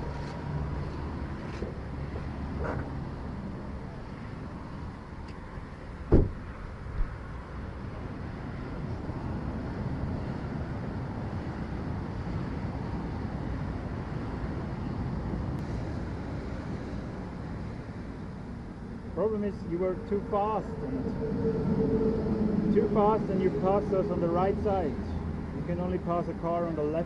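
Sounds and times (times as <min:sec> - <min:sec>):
road traffic rumble: 0:00.0 - 0:27.0
sharp thump: 0:06.1 - 0:06.5.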